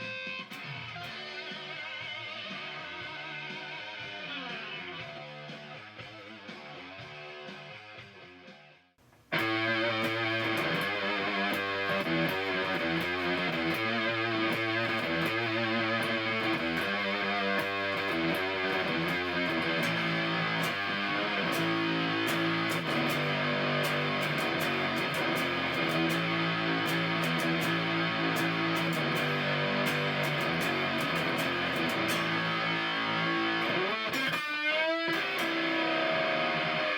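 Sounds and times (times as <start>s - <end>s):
fuzzed electric guitar riff: 0.0s - 8.5s, 9.3s - 36.9s
fuzzed guitar chord: 9.3s - 36.9s.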